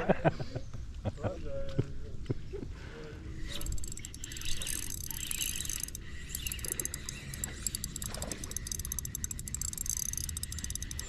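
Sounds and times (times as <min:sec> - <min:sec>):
fishing reel clicking: 0:03.4 - 0:11.0.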